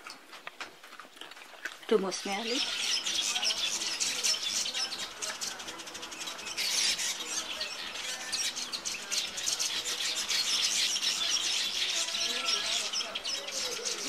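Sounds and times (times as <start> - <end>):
small birds chirping: 1.9 - 14.0.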